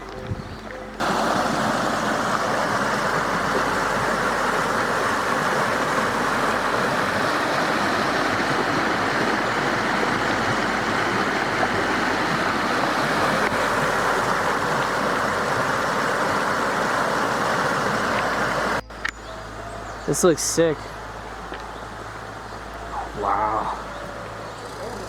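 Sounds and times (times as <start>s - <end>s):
waterfall roaring: 1.0s - 18.8s.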